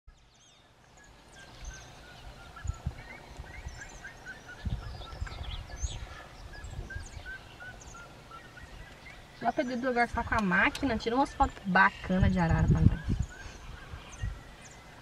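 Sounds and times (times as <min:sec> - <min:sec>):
birds chirping and whistling: 0:00.1 - 0:15.0.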